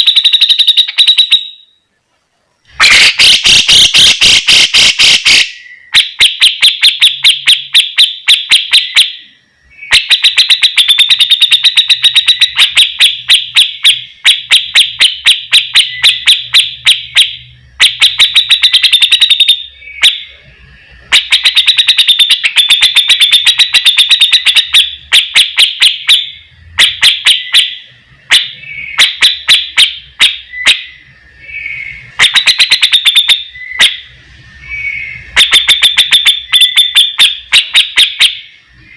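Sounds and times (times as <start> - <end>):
bird chattering calls: 2.8 - 7.2.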